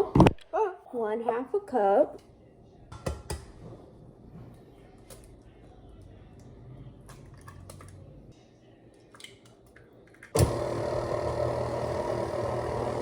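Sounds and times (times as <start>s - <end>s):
electric mixer beating batter: 10.4s - 13.0s.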